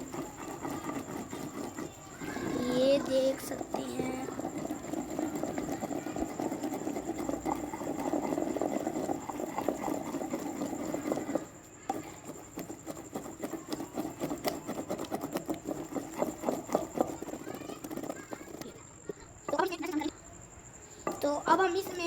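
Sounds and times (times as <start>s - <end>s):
pestle knocking in mortar: 0.0s - 20.1s, 21.0s - 22.0s
pestle grinding in mortar: 0.0s - 22.0s.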